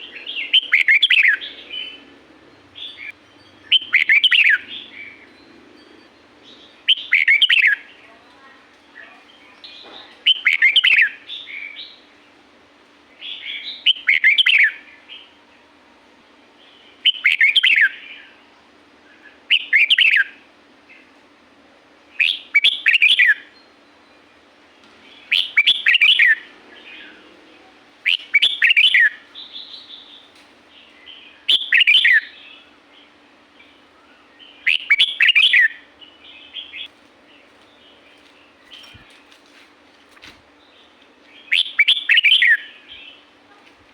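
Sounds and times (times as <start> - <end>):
bulbul singing: 0.0 - 12.2, 16.6 - 18.4, 22.1 - 27.3, 28.0 - 39.6, 40.2 - 43.5.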